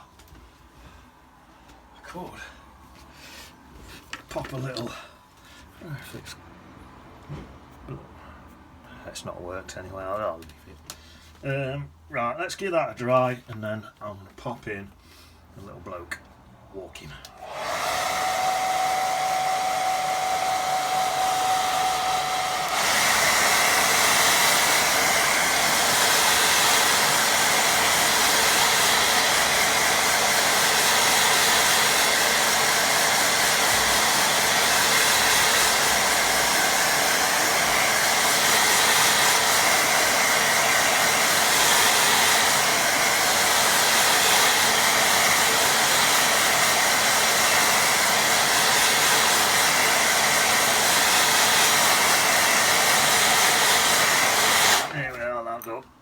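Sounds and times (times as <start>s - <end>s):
hair dryer blowing: 17.2s - 55.2s.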